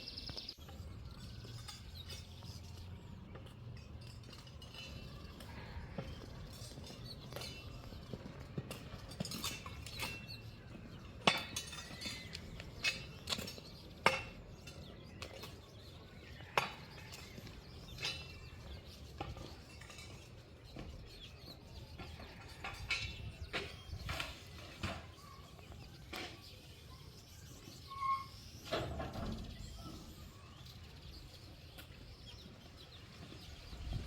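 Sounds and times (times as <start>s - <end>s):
clinks and knocks: 0.7s - 21.1s, 21.9s - 26.4s.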